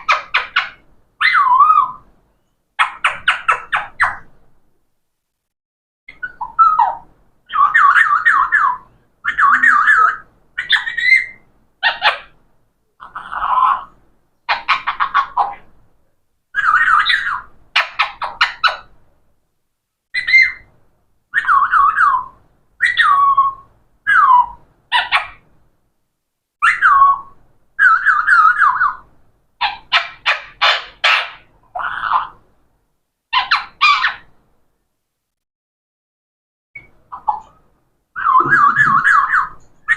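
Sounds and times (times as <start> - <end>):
parrot calling and chattering: 0.0 - 2.1, 2.8 - 4.3, 6.1 - 12.4, 13.0 - 15.7, 16.5 - 18.9, 20.2 - 20.7, 21.3 - 25.5, 26.6 - 32.5, 33.3 - 34.3, 36.8 - 39.9.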